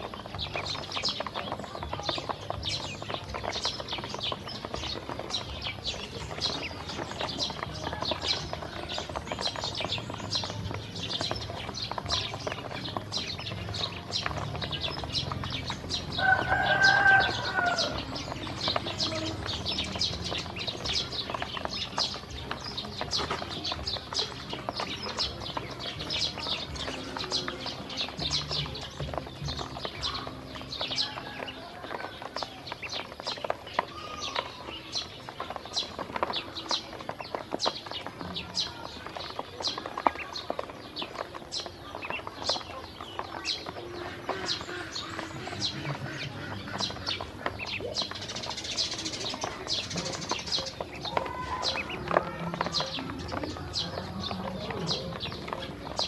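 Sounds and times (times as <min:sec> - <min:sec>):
ducklings peeping: 0:00.0 - 0:56.0
loud bird call: 0:00.5 - 0:36.8.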